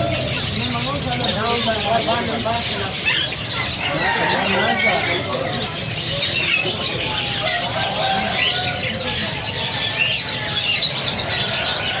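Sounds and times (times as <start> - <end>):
parrots chattering and chirping: 0.0 - 12.0.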